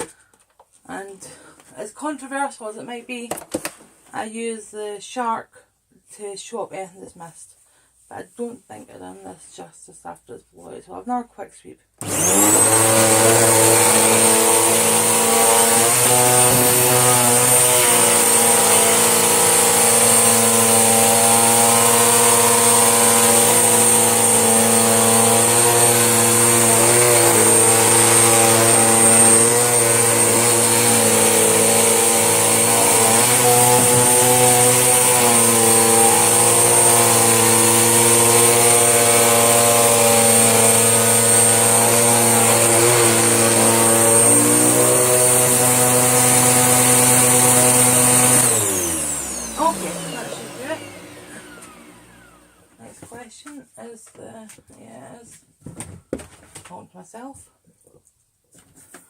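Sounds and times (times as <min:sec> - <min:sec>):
vacuum cleaner motor whining: 0:12.0 - 0:52.9.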